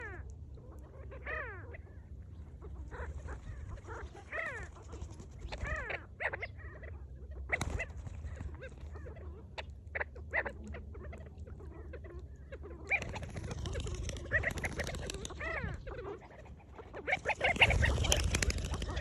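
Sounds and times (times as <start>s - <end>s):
flock of birds calling: 0.0s - 19.0s
steady low hum: 0.0s - 19.0s.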